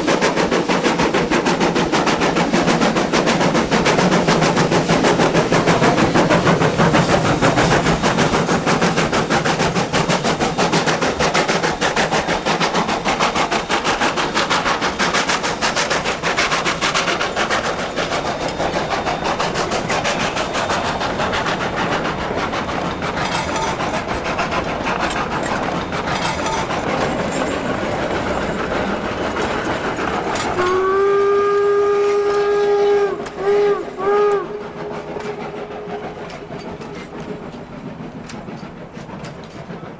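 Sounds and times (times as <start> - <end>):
steam locomotive chuffing: 0.0 - 39.9
steam whistle chord: 30.6 - 36.0.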